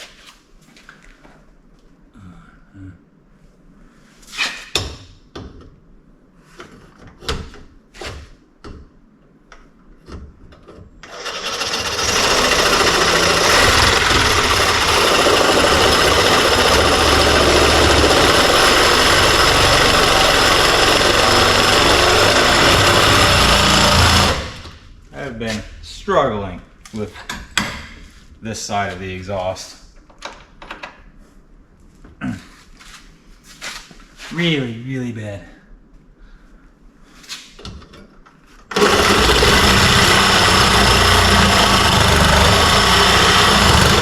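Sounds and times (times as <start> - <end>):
power tool running: 11.0 - 24.9, 38.7 - 44.0
knocks and clatter of parts: 30.0 - 31.0.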